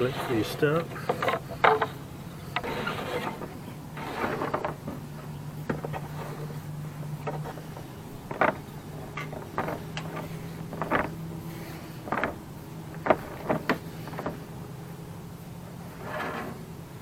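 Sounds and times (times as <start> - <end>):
steady low hum: 0.0 - 17.0
rope rustling and knocking: 0.8 - 2.0, 2.6 - 14.6.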